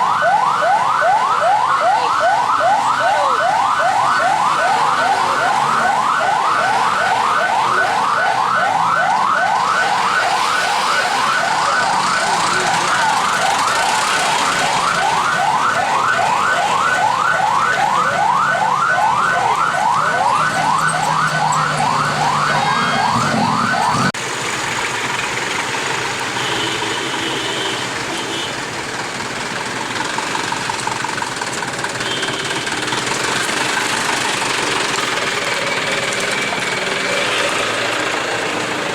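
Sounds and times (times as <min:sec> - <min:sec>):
electronic siren yelping: 0:00.0 - 0:24.2
vehicle engines running: 0:00.0 - 0:38.9.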